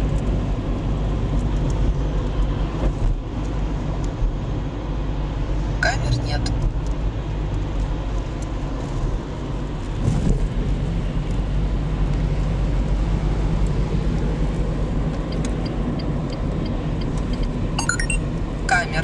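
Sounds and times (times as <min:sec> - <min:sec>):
car engine and tyre drone: 0:00.1 - 0:18.7.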